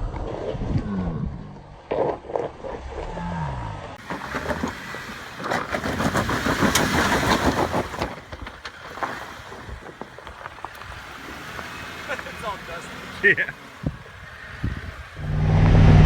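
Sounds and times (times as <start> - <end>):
car engine revving: 2.6 - 16.0
tyres crunching over loose rock: 4.0 - 15.2.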